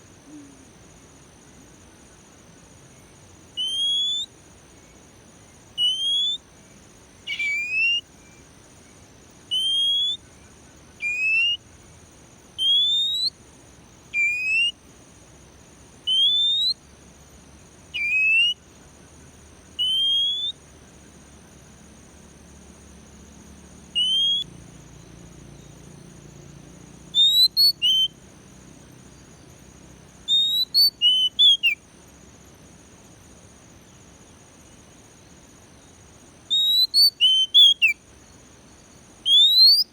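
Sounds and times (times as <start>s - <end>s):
bird whistling rising notes: 3.6s - 4.3s, 5.8s - 6.4s, 7.3s - 8.0s, 9.5s - 10.2s, 19.8s - 20.6s, 24.0s - 24.5s, 27.2s - 28.1s, 30.3s - 31.8s, 36.5s - 38.0s.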